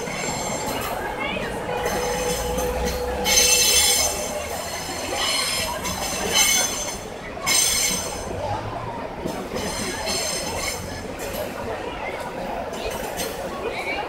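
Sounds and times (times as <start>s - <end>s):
train wheels squealing: 0.0s - 8.3s, 9.5s - 11.0s
freight train rumbling past: 0.0s - 14.0s.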